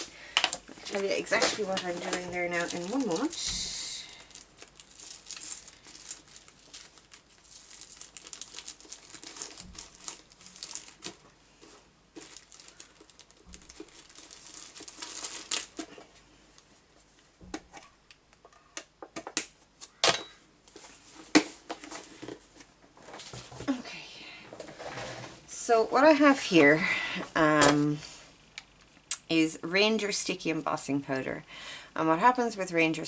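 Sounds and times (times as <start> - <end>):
craft supplies crinkling and rustling: 0.0 - 18.6, 19.2 - 23.9.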